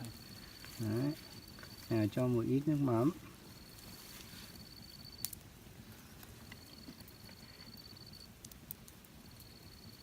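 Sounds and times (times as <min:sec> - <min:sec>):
insect trilling: 0:00.0 - 0:05.4, 0:06.4 - 0:08.4, 0:09.2 - 0:10.0.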